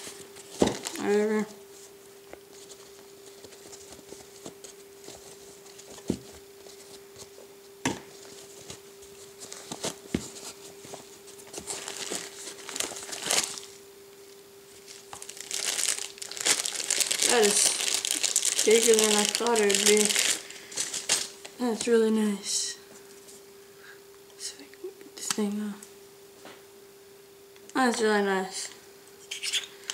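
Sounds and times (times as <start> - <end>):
faint hum: 0.0 - 29.9
packaging crinkling: 9.4 - 13.8, 14.8 - 21.6.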